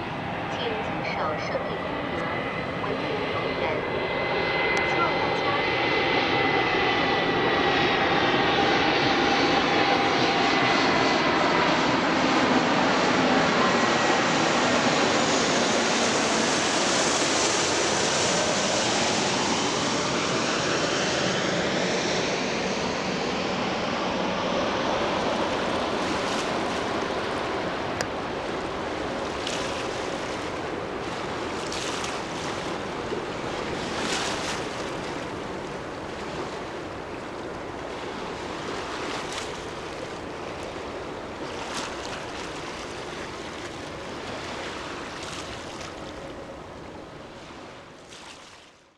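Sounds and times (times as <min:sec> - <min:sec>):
distant jet roar: 0:00.0 - 0:47.9
small waves washing on shore: 0:24.8 - 0:48.9.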